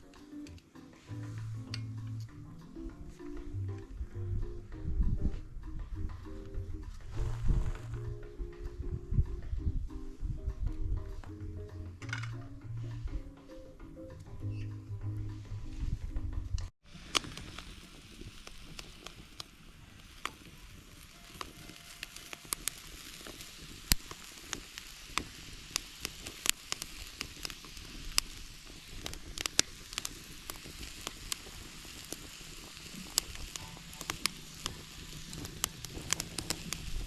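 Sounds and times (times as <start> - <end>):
clams sizzling in a frying pan: 16.8 - 37.0.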